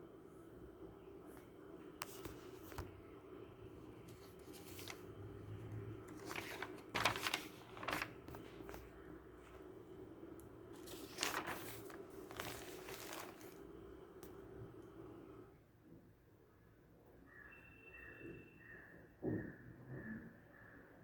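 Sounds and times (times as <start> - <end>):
steady low hum: 0.0 - 15.5
rustling and crinkling: 4.0 - 5.2, 6.0 - 9.7, 10.8 - 13.7.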